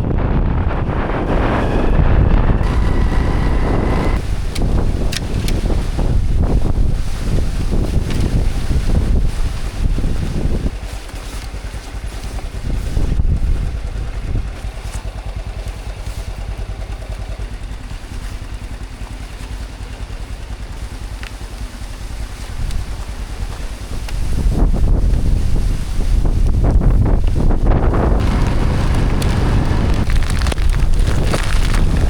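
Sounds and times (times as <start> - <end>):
storm wind buffeting the microphone: 0.0 - 14.6, 22.0 - 32.0.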